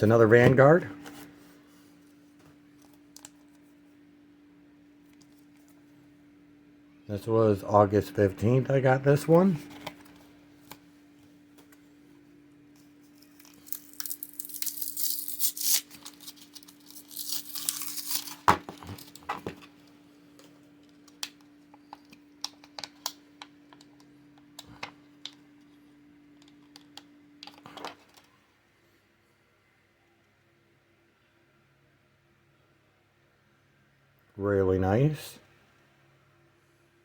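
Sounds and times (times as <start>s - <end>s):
packaging tearing and crinkling: 13.2s - 19.3s.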